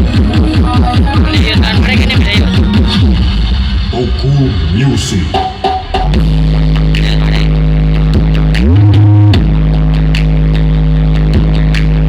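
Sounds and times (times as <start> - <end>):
deep bass note: 1.2 - 12.0.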